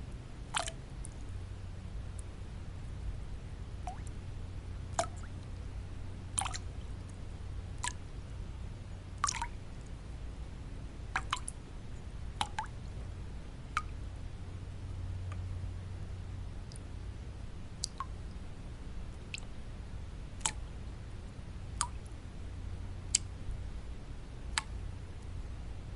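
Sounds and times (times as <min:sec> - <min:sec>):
low background hum: 0:00.0 - 0:25.9
water drops plinking: 0:09.2 - 0:09.5, 0:11.2 - 0:11.6.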